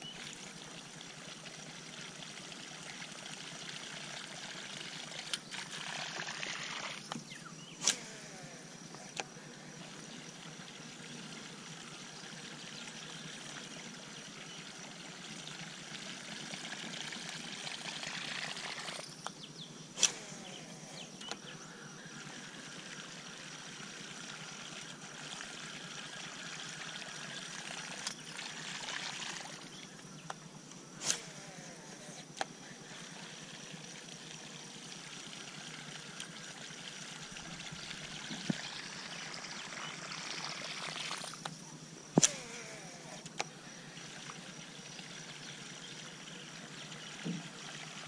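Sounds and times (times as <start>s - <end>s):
high insect drone: 0.0s - 48.0s
water trickling and gurgling: 0.0s - 48.0s
fishing lure across water: 4.6s - 10.7s, 16.4s - 26.2s, 26.8s - 47.6s
sharp clicks: 7.8s - 8.4s, 20.0s - 20.5s, 42.2s - 43.5s.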